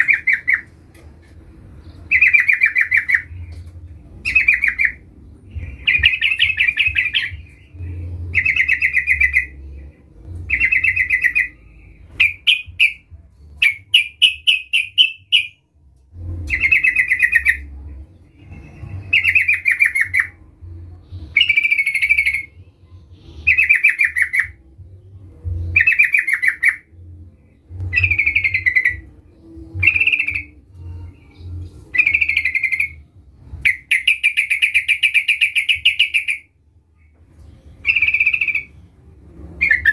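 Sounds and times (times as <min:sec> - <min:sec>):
bird singing bubbly phrases: 0:05.6 - 0:09.6
bird chirping quickly: 0:12.2 - 0:15.6.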